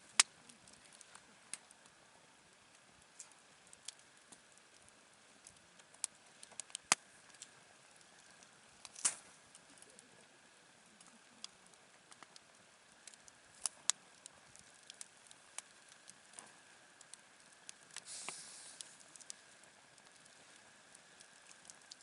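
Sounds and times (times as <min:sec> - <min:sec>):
campfire crackling and popping: 0:00.0 - 0:22.0
short hiss of fire: 0:18.0 - 0:19.2.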